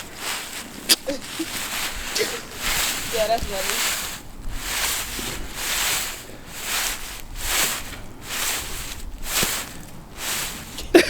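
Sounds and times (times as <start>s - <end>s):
limbs swishing through snow: 0.0s - 11.0s.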